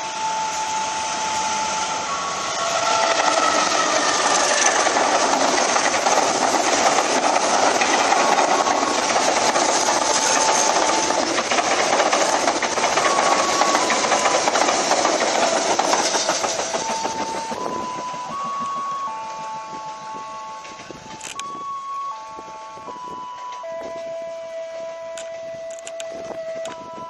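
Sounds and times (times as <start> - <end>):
train wheels clattering on rails: 2.1 - 21.5.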